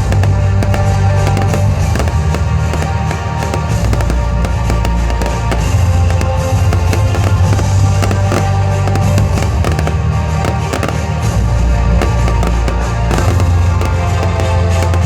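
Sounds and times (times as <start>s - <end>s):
fireworks bangs and crackles: 0.0s - 15.0s
loud music with heavy bass: 11.9s - 15.0s.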